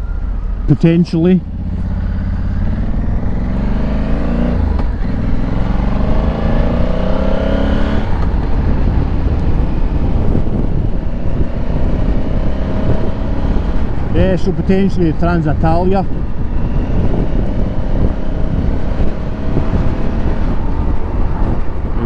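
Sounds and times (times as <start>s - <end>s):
motorcycle engine accelerating: 0.0s - 22.0s
wind and road noise: 0.0s - 22.0s.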